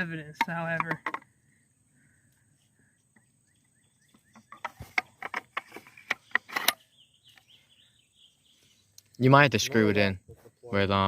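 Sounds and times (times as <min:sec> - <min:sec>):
gun parts clicking and knocking: 0:00.4 - 0:01.3, 0:04.3 - 0:07.4.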